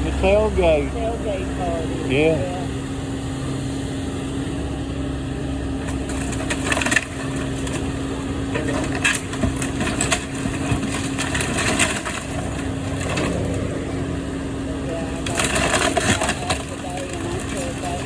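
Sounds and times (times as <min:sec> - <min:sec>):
low engine hum: 0:00.0 - 0:18.0
wood cracking and splintering: 0:05.8 - 0:13.9, 0:15.1 - 0:18.0.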